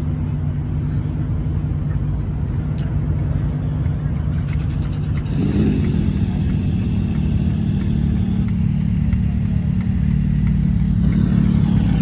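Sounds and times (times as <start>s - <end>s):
car engine running: 3.8s - 12.0s
faint ticking: 5.3s - 12.0s.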